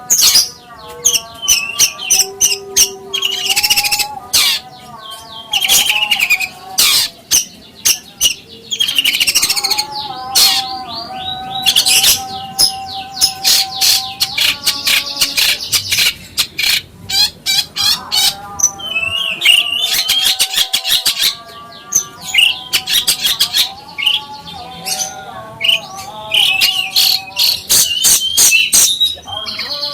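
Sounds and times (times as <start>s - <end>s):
songbirds chirping and trilling: 0.0s - 29.9s.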